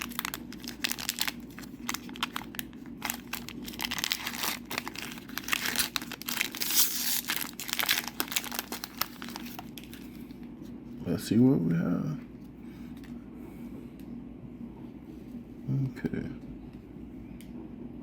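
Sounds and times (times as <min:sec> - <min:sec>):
wrapper crinkling as torn open: 0:00.0 - 0:10.2.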